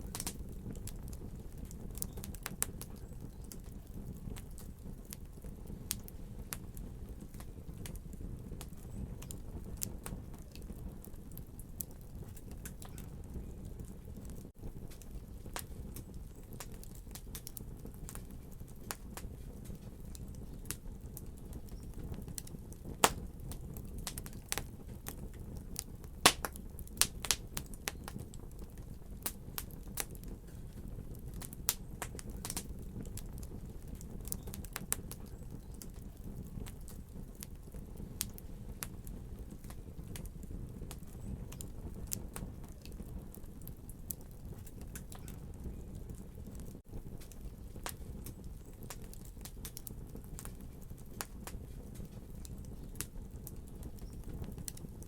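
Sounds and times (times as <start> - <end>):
burning wood popping and snapping: 0.0 - 55.0
flames rumbling: 0.0 - 55.0.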